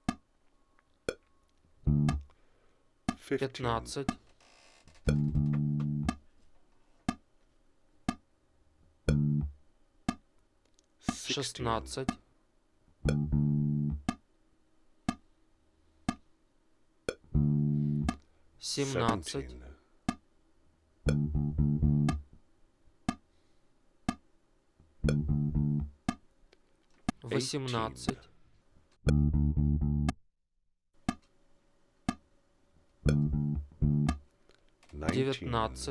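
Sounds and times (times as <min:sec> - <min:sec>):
steady click track: 0:00.0 - 0:02.4, 0:03.1 - 0:04.3, 0:05.0 - 0:06.3, 0:07.1 - 0:07.3, 0:08.1 - 0:08.3, 0:09.0 - 0:12.2, 0:13.0 - 0:14.3, 0:15.1 - 0:15.3, 0:16.1 - 0:16.3, 0:17.1 - 0:19.4, 0:20.1 - 0:20.3, 0:21.1 - 0:22.4, 0:23.1 - 0:23.3, 0:24.1 - 0:24.3, 0:25.0 - 0:27.3, 0:29.0 - 0:29.4, 0:31.0 - 0:31.4, 0:32.1 - 0:32.3, 0:33.0 - 0:35.4
bass guitar notes: 0:01.8 - 0:02.3, 0:05.1 - 0:06.2, 0:09.0 - 0:09.6, 0:13.0 - 0:14.2, 0:17.1 - 0:18.2, 0:21.0 - 0:22.4, 0:25.0 - 0:26.2, 0:29.0 - 0:30.2, 0:33.0 - 0:34.2.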